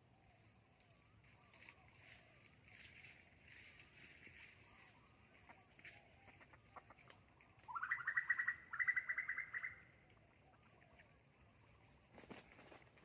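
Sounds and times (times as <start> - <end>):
bird trilling: 7.7 - 9.9.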